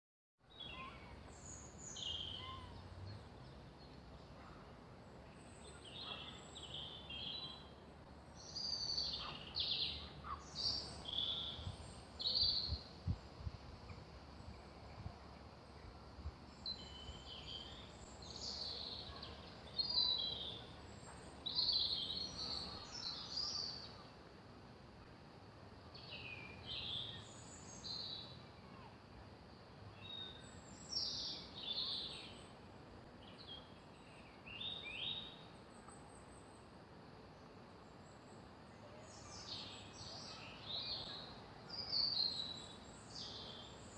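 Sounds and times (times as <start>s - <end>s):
songbirds singing: 0.5s - 24.3s, 25.7s - 43.9s.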